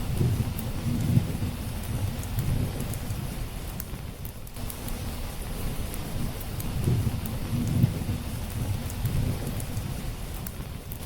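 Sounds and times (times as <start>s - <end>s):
distant thunder rumble: 0.0s - 3.4s, 6.8s - 10.0s
steady rain: 0.0s - 11.0s
wood fire crackling: 0.0s - 11.0s.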